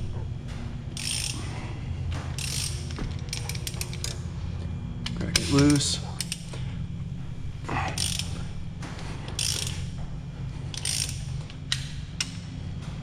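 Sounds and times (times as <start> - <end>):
steady low hum: 0.0 - 13.0
hand ratchet clicking: 0.9 - 1.5, 2.4 - 4.2, 5.0 - 6.6, 7.9 - 8.4, 9.3 - 9.9, 10.7 - 12.4.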